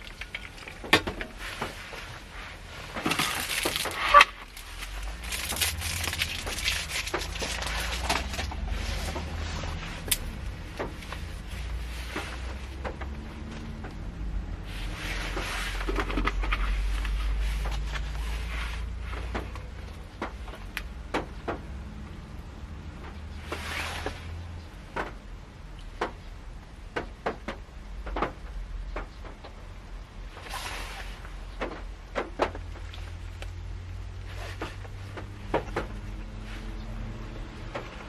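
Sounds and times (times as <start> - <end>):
raindrops tapping on car roof: 0.0 - 9.3, 24.8 - 30.4.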